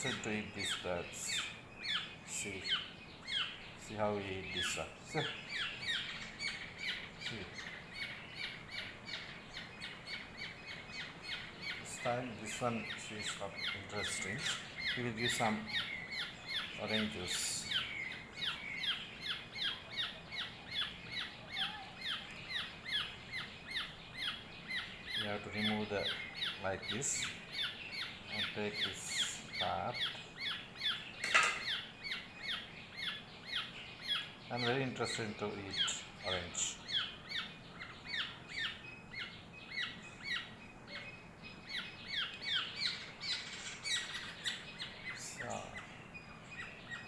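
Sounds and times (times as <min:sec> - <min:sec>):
young bird begging calls: 0:00.0 - 0:47.0
young bird begging squawks: 0:12.8 - 0:34.3.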